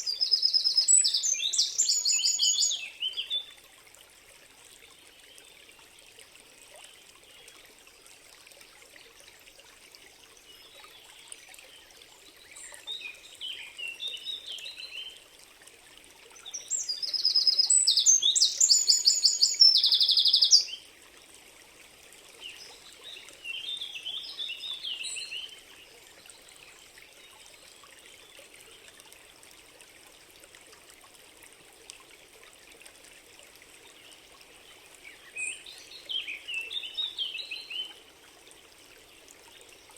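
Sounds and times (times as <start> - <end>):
songbirds twittering: 0.0 - 3.5, 16.4 - 20.7
faint steady hiss: 0.0 - 39.9.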